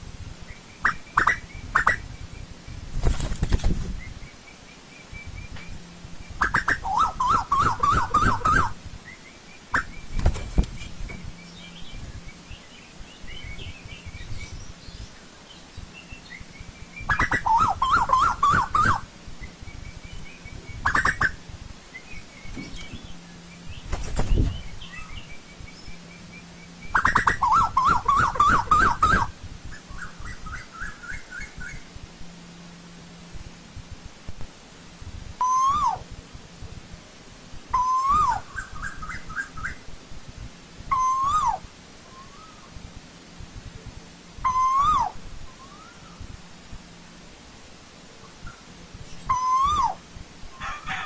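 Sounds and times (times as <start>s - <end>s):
koel calling: 0.8s - 2.1s, 6.4s - 8.8s, 17.1s - 19.1s, 26.9s - 31.7s, 35.4s - 36.1s, 37.8s - 39.8s, 40.9s - 42.7s, 44.4s - 46.1s, 49.3s - 50.0s
faint high chirps: 40.9s - 42.8s, 44.4s - 46.4s.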